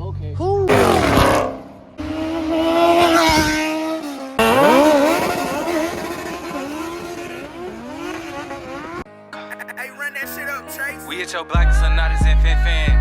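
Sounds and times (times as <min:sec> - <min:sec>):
car engines revving: 0:00.7 - 0:09.1.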